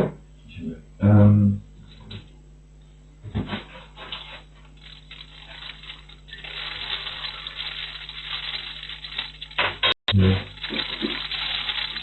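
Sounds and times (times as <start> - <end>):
rain pattering and dripping: 4.8 - 9.6, 10.5 - 12.0.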